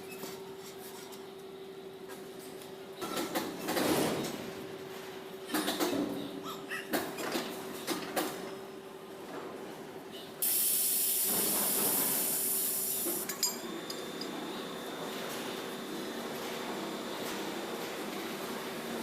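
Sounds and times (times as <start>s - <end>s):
air hissing out: 10.4s - 13.3s.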